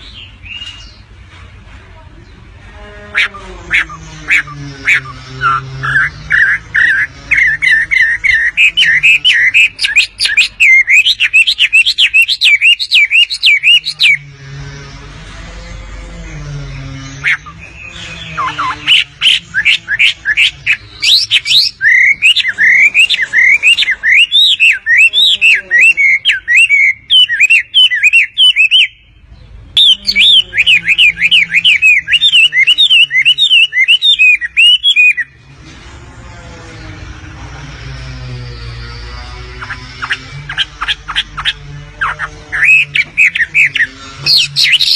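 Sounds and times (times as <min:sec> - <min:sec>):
bird singing high chirps: 0:03.2 - 0:14.3, 0:16.6 - 0:35.4, 0:39.4 - 0:44.9.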